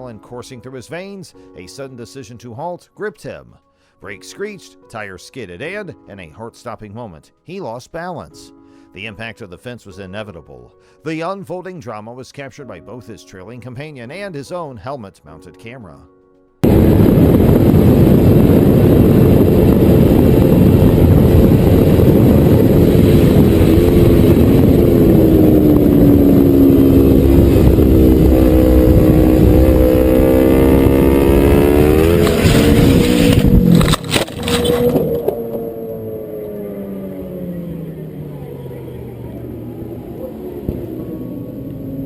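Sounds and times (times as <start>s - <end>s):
motorcycle engine: 16.6s - 42.0s
wind rumble: 16.6s - 42.0s.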